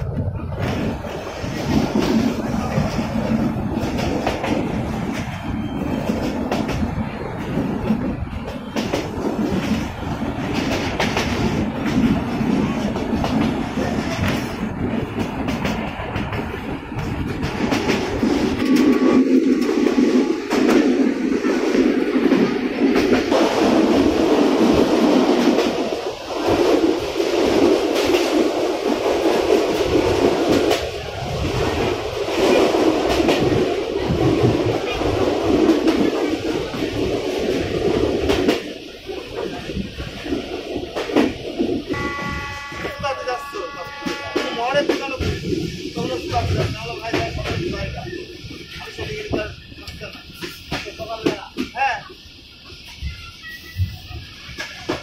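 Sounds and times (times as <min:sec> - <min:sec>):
train rolling rumble: 0:00.0 - 0:55.0.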